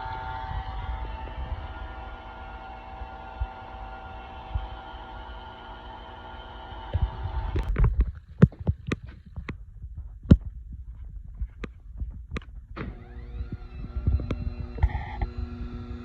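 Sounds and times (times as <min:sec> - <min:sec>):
milling machine motor hum: 0:00.0 - 0:07.8, 0:12.8 - 0:16.0
sharp clicks and knocks: 0:07.0 - 0:15.3.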